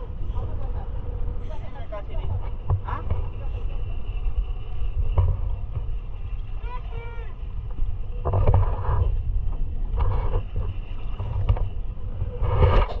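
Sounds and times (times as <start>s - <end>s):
motorboat engine rumble: 0.0s - 13.0s.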